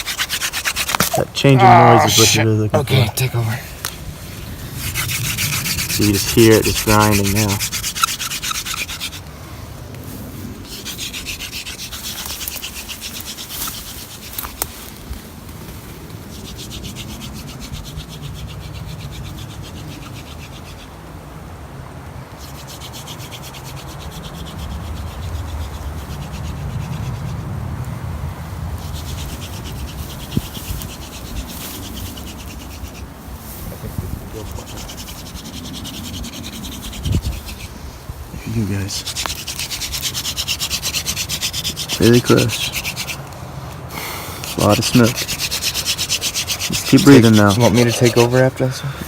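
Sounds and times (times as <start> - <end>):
hand-drill spindle grinding wood: 0.0 - 3.0, 4.7 - 9.3, 10.6 - 15.0, 22.4 - 27.1, 28.8 - 49.0.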